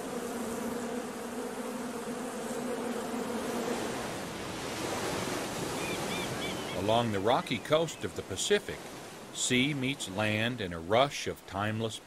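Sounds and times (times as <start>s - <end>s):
bees buzzing: 0.0s - 12.0s
ocean surf: 3.4s - 12.0s.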